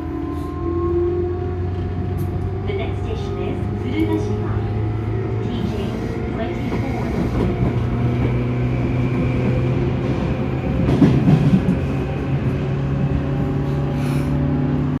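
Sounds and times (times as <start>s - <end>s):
rail rumble: 0.0s - 15.0s.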